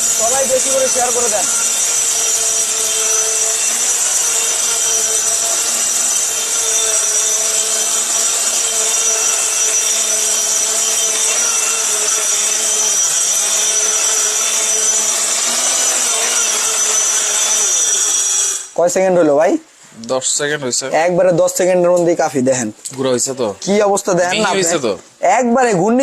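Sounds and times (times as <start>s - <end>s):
grain grinder motor whine: 0.0s - 18.8s.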